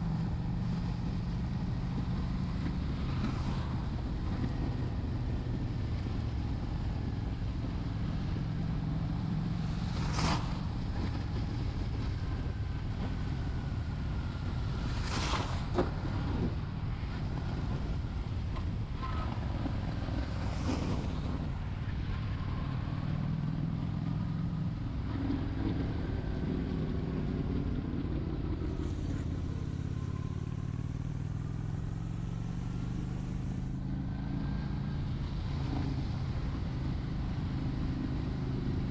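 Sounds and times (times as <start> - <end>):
road and wind noise: 0.0 - 38.9.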